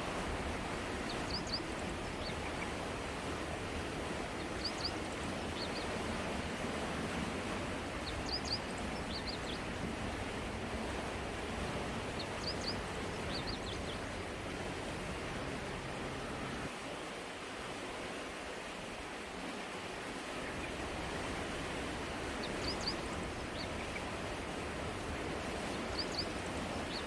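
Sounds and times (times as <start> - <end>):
river flowing: 0.0 - 27.0
bird chirping: 4.6 - 5.8.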